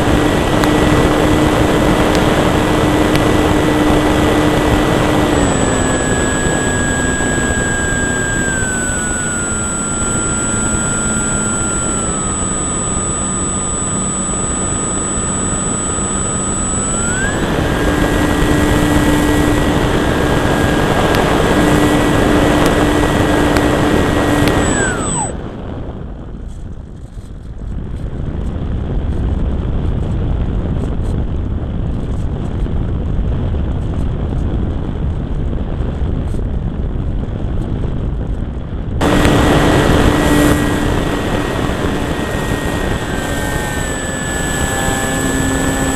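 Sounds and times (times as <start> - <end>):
model plane electric motor whining: 0.0 - 25.6, 39.0 - 45.9.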